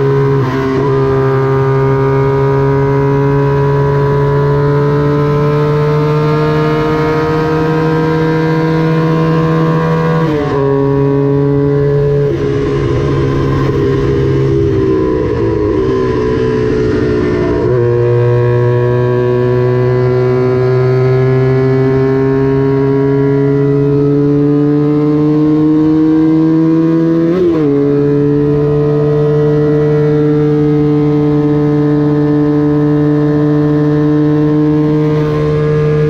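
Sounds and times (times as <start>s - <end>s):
racing motorcycle engine revving: 0.0s - 36.0s.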